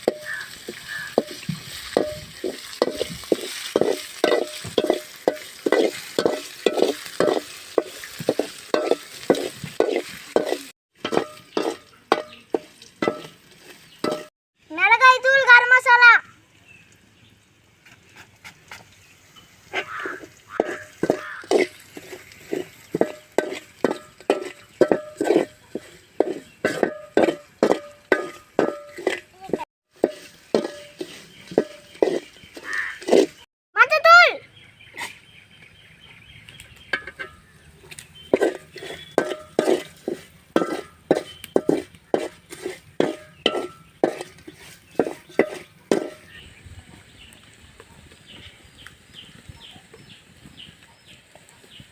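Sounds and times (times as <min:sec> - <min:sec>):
onions frying: 0:00.0 - 0:14.3, 0:17.6 - 0:33.5, 0:36.5 - 0:51.9
spoon scraping metal pan: 0:00.0 - 0:14.3, 0:19.4 - 0:33.4, 0:36.9 - 0:46.4.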